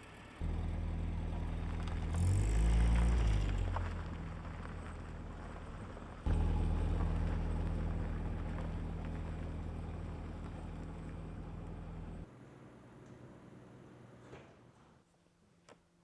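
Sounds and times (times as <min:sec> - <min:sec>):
low mechanical hum: 0:04.2 - 0:15.6.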